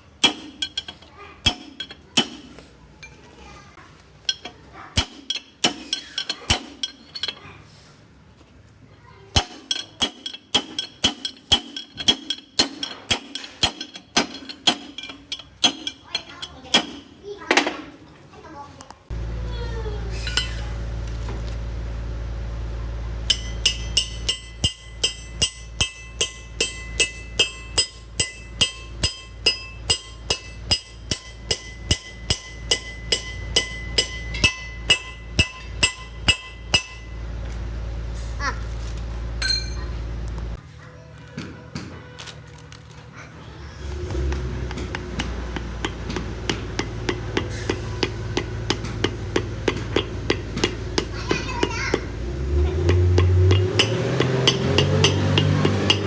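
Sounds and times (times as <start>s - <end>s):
hammer ringing on steel: 23.3s - 37.3s, 39.4s - 39.9s, 44.7s - 56.0s.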